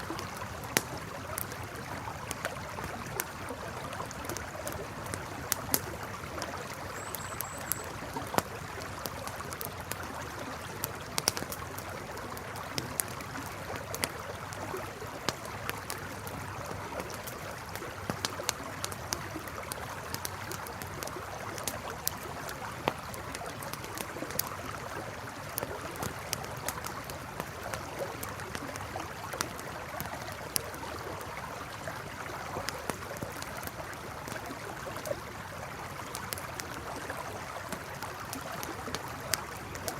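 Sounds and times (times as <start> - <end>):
campfire crackling and popping: 0.0 - 39.9
flowing river: 0.0 - 39.9
faint high chirps: 6.9 - 8.0.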